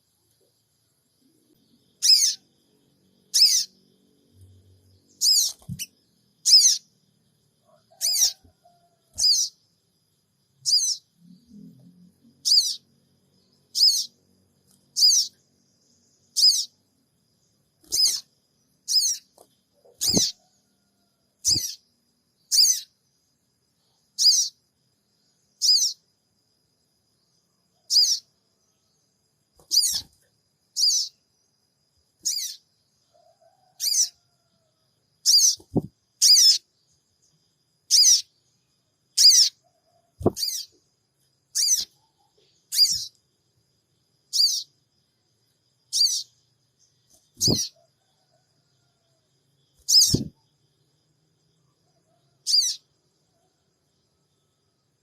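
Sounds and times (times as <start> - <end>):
bird giving short high calls: 41.6 - 41.9, 42.7 - 43.1, 49.9 - 50.3.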